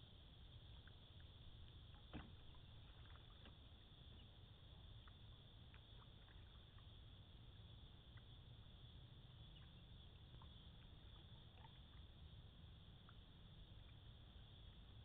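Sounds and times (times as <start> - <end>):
paddle water drips: 0.6 - 15.0
paddle knocking on hull: 1.9 - 4.2.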